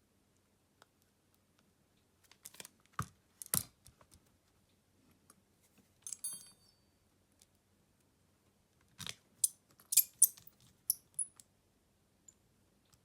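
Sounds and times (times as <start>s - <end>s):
metallic clink: 6.1s - 6.8s, 9.9s - 11.3s.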